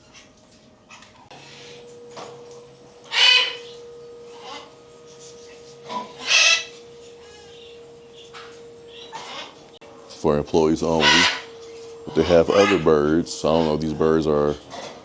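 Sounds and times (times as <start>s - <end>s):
soft bird calls: 2.9s - 15.0s
parrot squawks: 3.1s - 4.8s, 5.9s - 7.7s, 8.9s - 9.6s, 10.9s - 12.9s.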